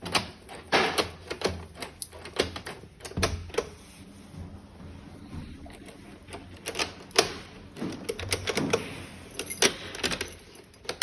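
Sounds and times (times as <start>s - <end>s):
metallic clicks of keys and locks: 0.0s - 3.6s, 8.0s - 11.0s.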